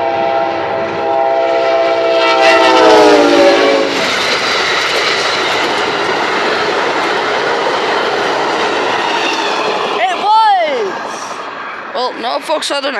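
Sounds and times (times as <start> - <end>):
locomotive air horn: 0.0 - 4.1
train wheels clattering on rails: 2.2 - 12.9.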